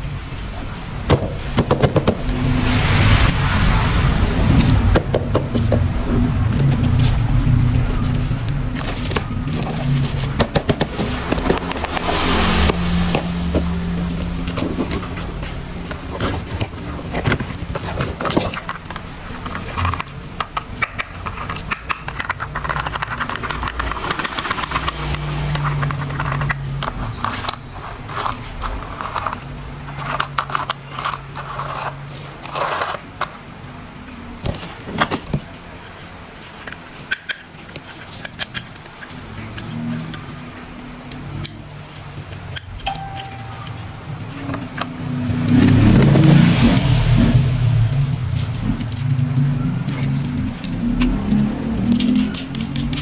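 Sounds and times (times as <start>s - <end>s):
plastic parts clicking and knocking: 1.1s - 2.2s, 6.5s - 11.9s, 15.8s - 25.0s, 36.5s - 40.3s
packaging rustling and scraping: 4.4s - 33.5s, 34.1s - 41.2s
low steady hum: 42.5s - 53.0s.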